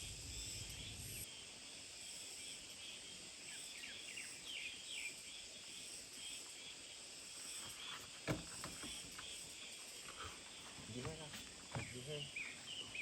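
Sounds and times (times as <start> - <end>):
high insect chorus: 0.0 - 13.0.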